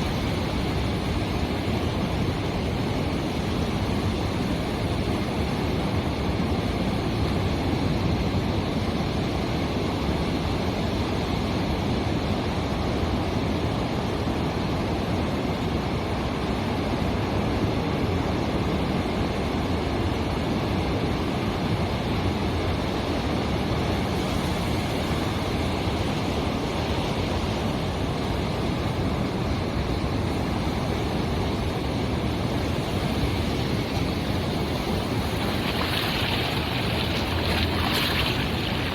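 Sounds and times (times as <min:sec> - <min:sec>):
ocean waves breaking: 0:23.8 - 0:38.9.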